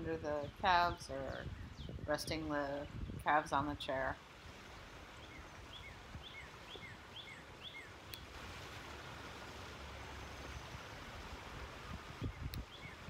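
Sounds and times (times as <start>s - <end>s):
outdoor hiss: 4.2s - 13.0s
bird chirping: 5.2s - 8.2s, 12.2s - 13.0s.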